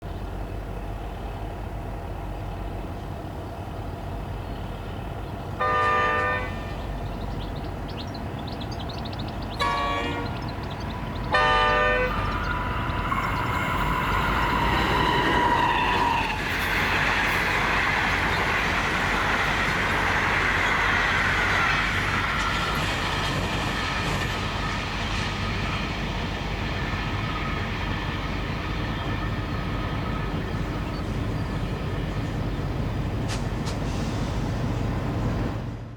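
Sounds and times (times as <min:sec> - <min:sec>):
diesel locomotives idling: 0:00.0 - 0:35.9
wheels rushing on rail: 0:00.0 - 0:35.9
train passing: 0:00.1 - 0:35.9
locomotive horn blasts: 0:05.6 - 0:06.8, 0:09.6 - 0:10.4, 0:11.3 - 0:12.4.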